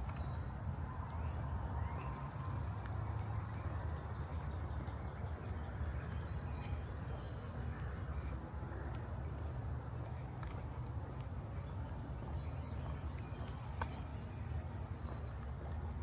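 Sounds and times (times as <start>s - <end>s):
footsteps on path: 0.0s - 16.0s.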